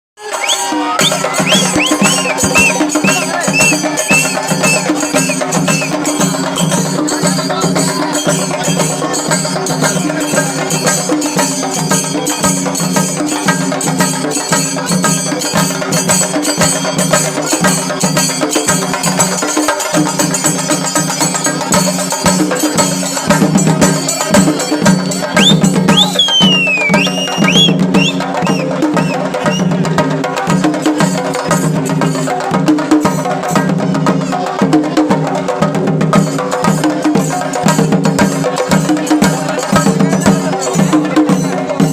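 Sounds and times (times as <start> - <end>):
high gliding whistle tones: 0.2 - 6.0, 25.4 - 29.7
fast rhythmic drumming: 0.2 - 41.9.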